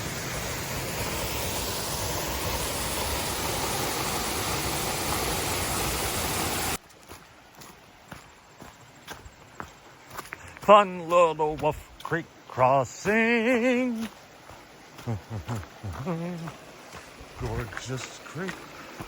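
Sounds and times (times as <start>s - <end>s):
waterfall roaring: 0.0s - 6.8s.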